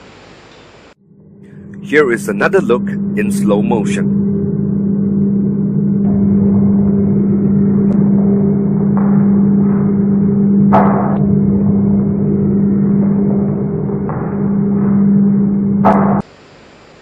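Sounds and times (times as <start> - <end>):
loud low drone: 1.0 - 16.3.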